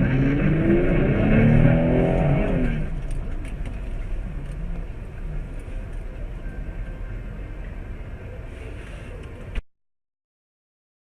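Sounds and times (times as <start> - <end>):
car engine revving: 0.0 - 4.9
low engine rumble: 0.0 - 9.6.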